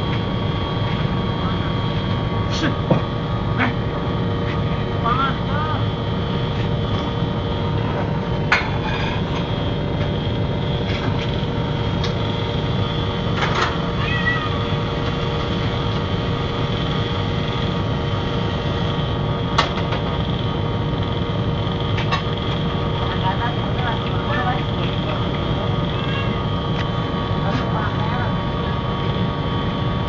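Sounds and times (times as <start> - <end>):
low rumble and hum: 0.0 - 30.0
cat meowing: 13.9 - 14.7, 25.9 - 26.4.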